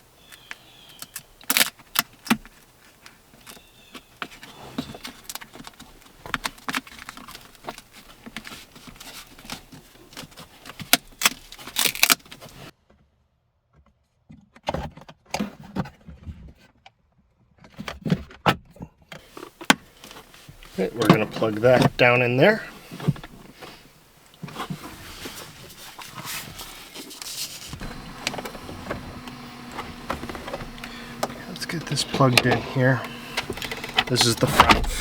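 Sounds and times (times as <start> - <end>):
clicks and knocks of parts fitted: 27.2 - 35.0.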